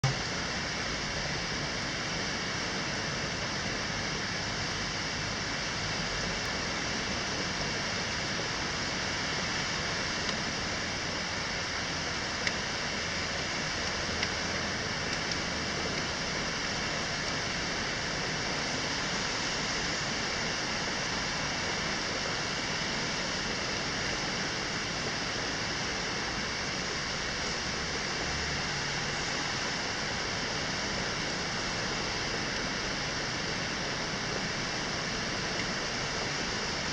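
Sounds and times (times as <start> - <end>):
rain falling: 5.8 - 36.9
faint ticks: 12.4 - 12.6.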